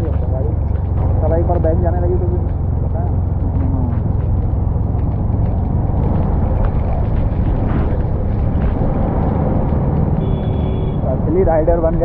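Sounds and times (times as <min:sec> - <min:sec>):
motorcycle engine rumble: 0:00.0 - 0:12.0
wind noise on microphone: 0:00.0 - 0:12.0.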